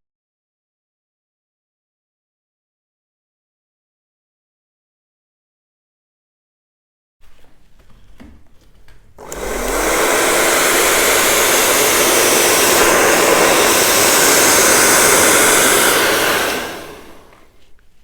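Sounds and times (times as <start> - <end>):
blow dryer motor: 9.2 - 17.8.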